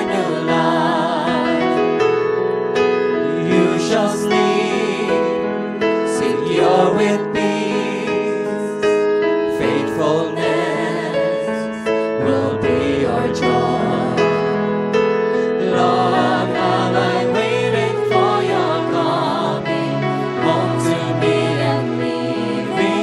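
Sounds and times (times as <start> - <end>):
choir-like voices singing: 0.0 - 2.1, 3.2 - 23.0
piano: 0.0 - 23.0.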